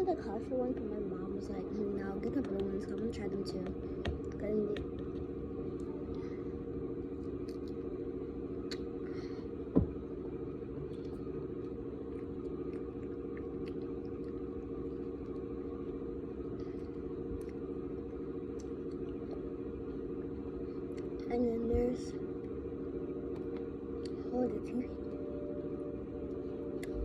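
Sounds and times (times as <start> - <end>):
steady low hum: 0.0 - 27.0
faint clicks and crackles: 10.9 - 25.2.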